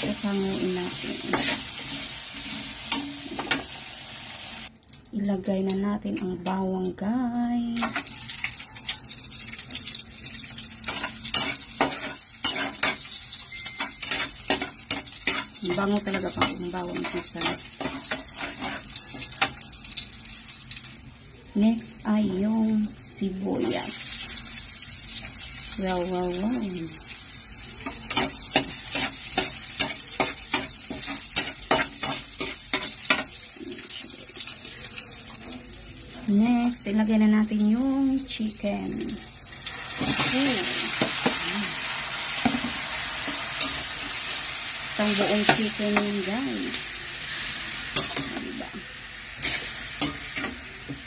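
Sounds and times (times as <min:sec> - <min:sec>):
garlic sizzling in hot oil: 0:00.0 - 0:51.0
metal spatula scraping a wok: 0:01.2 - 0:03.6, 0:10.8 - 0:19.8.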